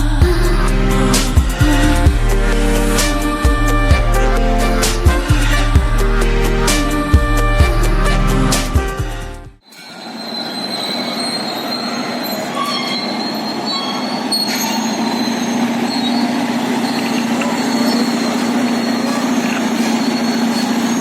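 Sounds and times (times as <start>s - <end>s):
steel tracks grinding and clattering: 9.6s - 21.0s
diesel engine droning: 11.9s - 21.0s.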